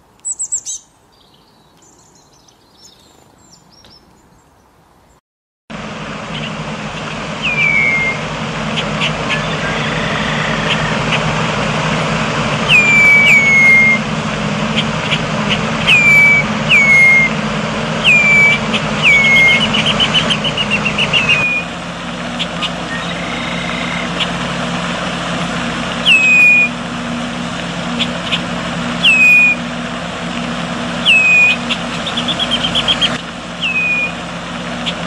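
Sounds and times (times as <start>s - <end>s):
songbird whistles: 0.2s - 0.9s, 7.4s - 11.2s, 12.6s - 14.1s, 15.5s - 17.4s, 18.0s - 21.7s, 22.6s - 24.2s, 26.0s - 26.8s, 29.0s - 29.6s, 31.0s - 34.2s
steady low hum: 5.7s - 26.0s.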